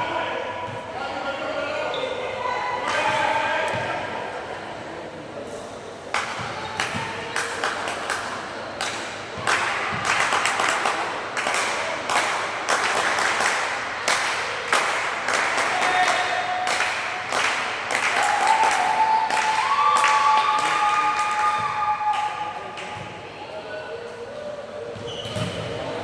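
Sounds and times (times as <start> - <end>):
crowd noise in hall: 0.0 - 26.0
hand claps: 6.2 - 23.0.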